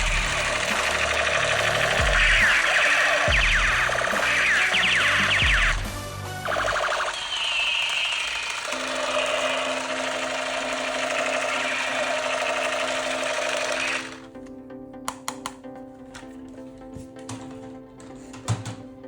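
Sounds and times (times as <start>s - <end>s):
electronic sound effects: 0.0s - 14.2s
toy motor buzzing: 0.0s - 14.3s.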